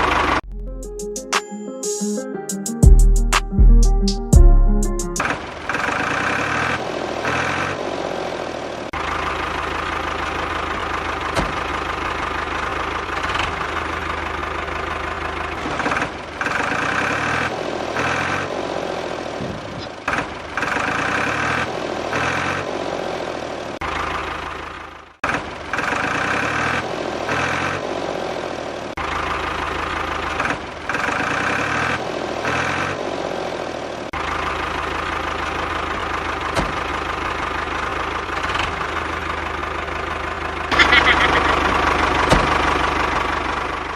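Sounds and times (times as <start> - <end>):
tractor engine idling with knocking: 0.0 - 0.4, 8.9 - 17.4, 19.3 - 21.6, 23.8 - 26.6, 28.9 - 31.6, 34.1 - 43.9.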